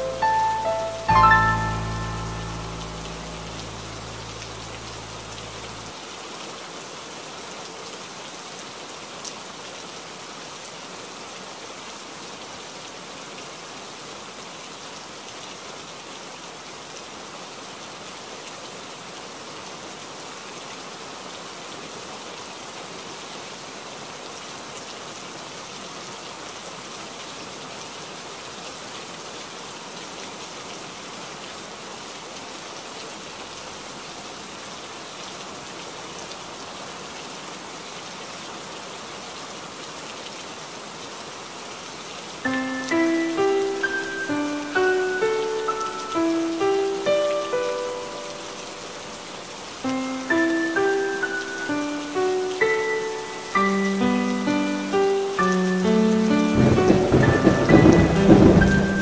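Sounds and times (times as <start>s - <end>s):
low held music notes: 0.0s - 5.9s, 49.8s - 59.0s
steady rain: 0.0s - 59.0s.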